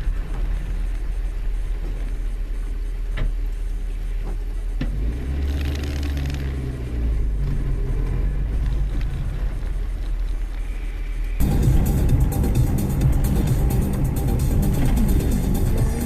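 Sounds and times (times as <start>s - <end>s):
car engine and road noise: 0.0s - 16.0s
electronic dance music: 11.4s - 16.0s.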